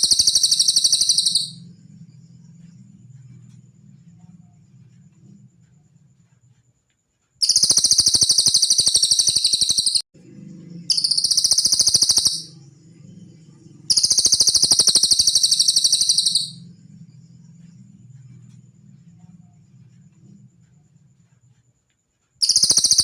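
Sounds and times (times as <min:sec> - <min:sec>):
bird high-pitched trills: 0:00.0 - 0:01.8, 0:07.4 - 0:10.0, 0:10.8 - 0:16.8, 0:22.4 - 0:23.0.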